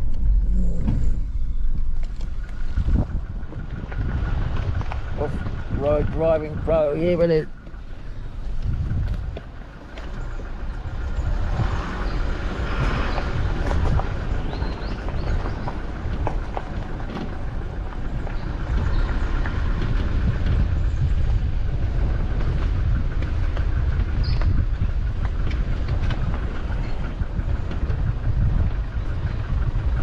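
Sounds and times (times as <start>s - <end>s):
knocks and rattles over bumps: 0.0s - 30.0s
vehicle rumbling on dirt track: 0.0s - 30.0s.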